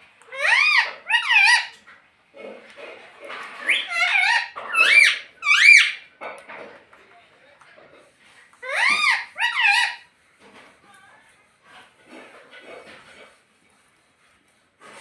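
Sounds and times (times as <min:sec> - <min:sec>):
parrot high-pitched calls: 0:00.2 - 0:01.8, 0:03.6 - 0:06.1, 0:08.6 - 0:10.1.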